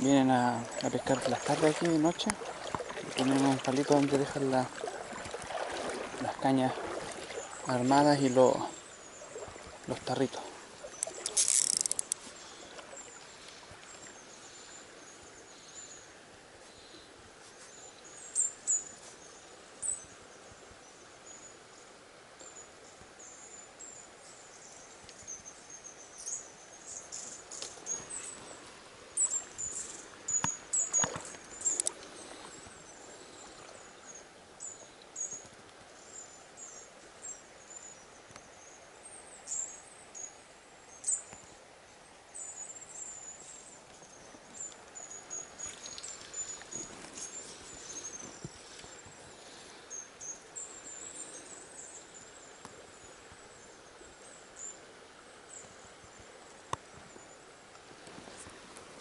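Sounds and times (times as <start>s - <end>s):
small birds chirping: 22.4s - 41.6s, 42.3s - 54.9s.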